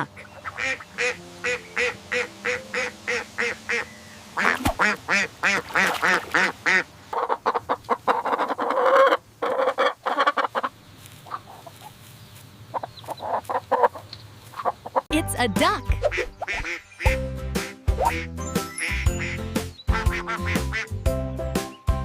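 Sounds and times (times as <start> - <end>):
duck quacking: 0.0 - 11.8, 16.0 - 18.3, 18.9 - 20.9.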